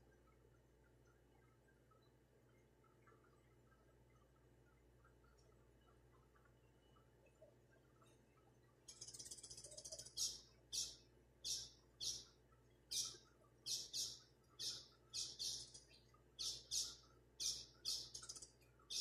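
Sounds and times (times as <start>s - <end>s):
small bird chirping: 8.9s - 19.0s.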